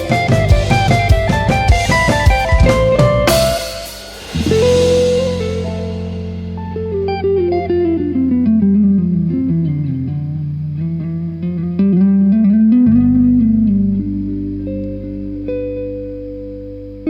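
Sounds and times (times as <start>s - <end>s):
guitar melody: 0.0s - 17.0s
sustained bass notes: 0.3s - 9.2s.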